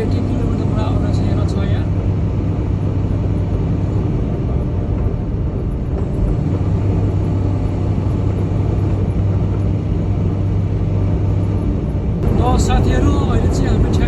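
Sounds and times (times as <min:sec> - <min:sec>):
diesel truck engine droning: 0:00.0 - 0:14.0
road rumble: 0:00.0 - 0:14.0.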